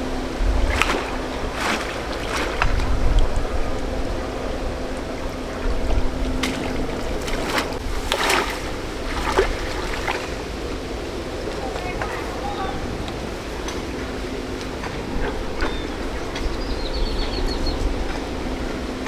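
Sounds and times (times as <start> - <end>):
sharp water splashes: 0.0 - 4.4, 5.4 - 10.9
water sloshing: 0.0 - 19.0.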